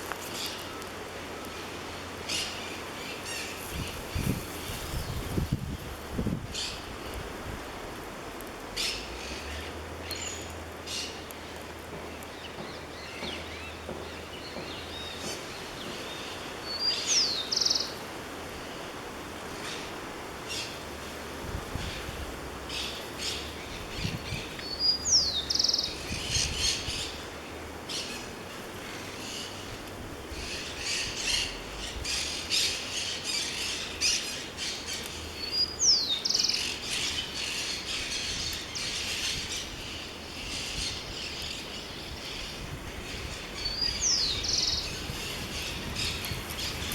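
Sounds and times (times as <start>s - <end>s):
birds chirping: 8.8s - 18.1s, 21.8s - 46.9s.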